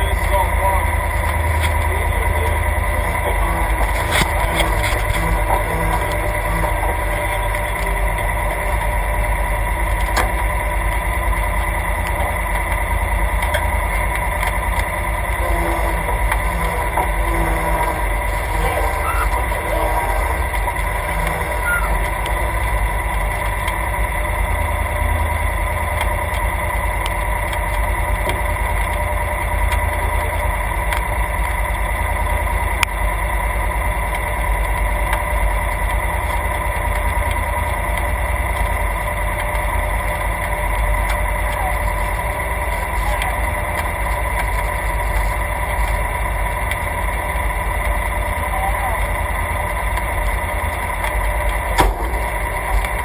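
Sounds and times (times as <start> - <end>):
engine idling: 0.0 - 53.0
sharp click: 51.8 - 53.0.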